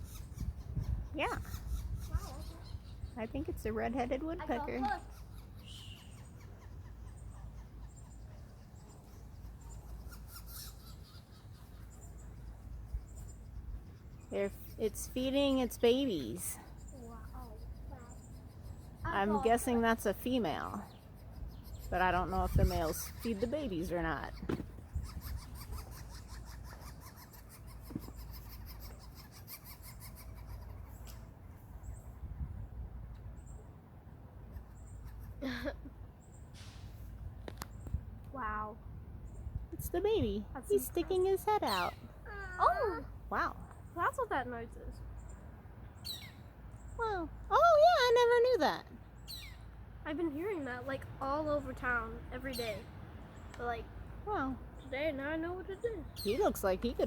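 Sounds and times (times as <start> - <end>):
high-pitched bird chirps: 0.0 - 3.5, 4.4 - 13.3, 20.8 - 31.2, 39.3 - 45.3, 46.0 - 49.7
low outdoor rumble: 0.0 - 10.1, 30.7 - 57.0
woodpecker nestlings begging: 0.0 - 32.2, 34.4 - 36.6, 37.3 - 57.0.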